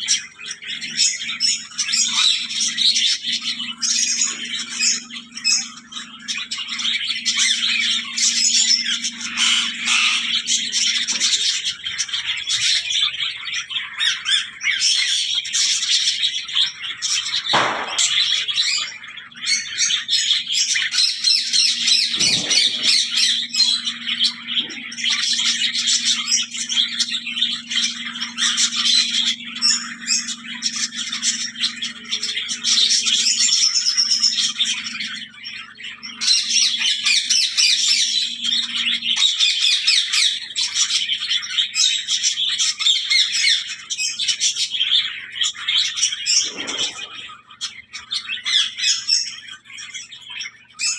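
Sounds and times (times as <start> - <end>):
bird squawks: 0.0 - 50.9
birds chattering and chirping: 0.0 - 50.9
steady low hum: 20.8 - 40.0.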